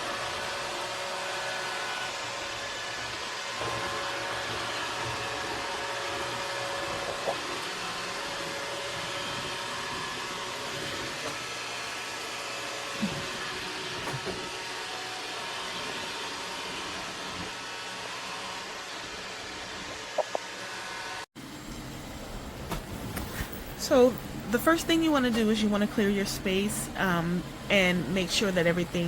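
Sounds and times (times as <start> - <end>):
robot vacuum running: 0.0 - 21.6.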